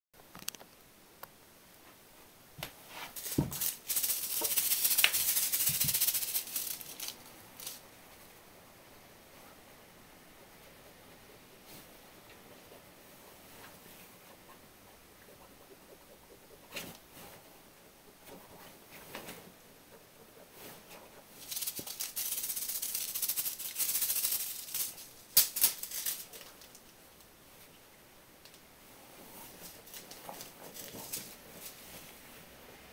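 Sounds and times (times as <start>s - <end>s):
sugar rattling in paper packet: 3.2s - 7.8s, 21.4s - 26.9s, 29.6s - 31.8s.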